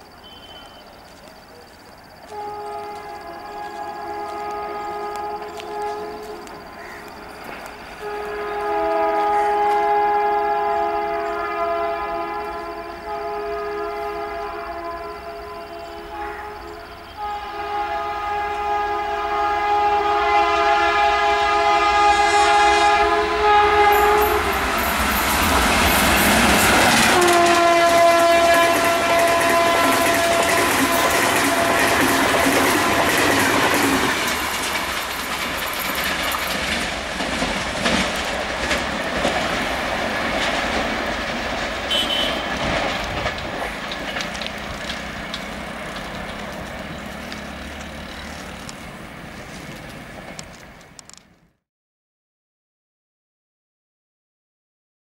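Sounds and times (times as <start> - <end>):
train passing rush and clatter: 0.0 - 51.6
locomotive air horn: 2.2 - 7.0, 8.0 - 34.3, 41.9 - 43.4.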